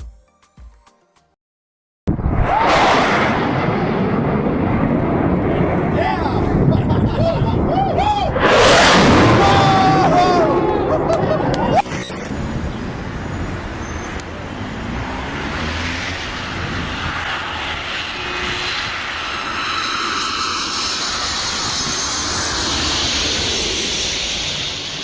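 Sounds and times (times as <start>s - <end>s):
jet aircraft passing low: 2.4s - 6.7s, 14.4s - 25.0s.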